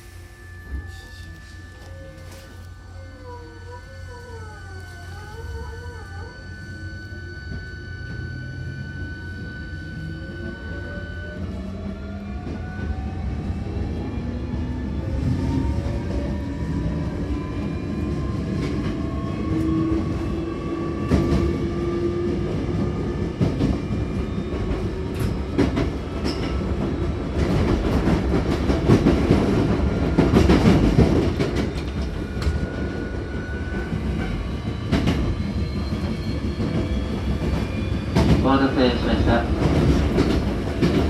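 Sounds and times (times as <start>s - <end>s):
electric train motor whine: 0.0s - 12.4s
train rumble: 0.0s - 41.0s.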